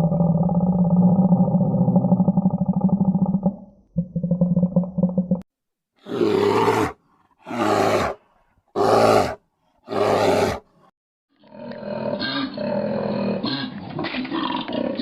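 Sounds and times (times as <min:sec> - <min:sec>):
big cat roaring: 0:06.0 - 0:08.2, 0:08.8 - 0:10.7
rough animal call: 0:06.0 - 0:10.6.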